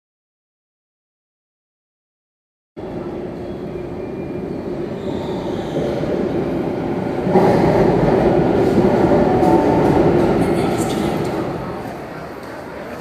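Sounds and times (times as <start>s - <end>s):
electric train pulling in: 2.8s - 12.9s.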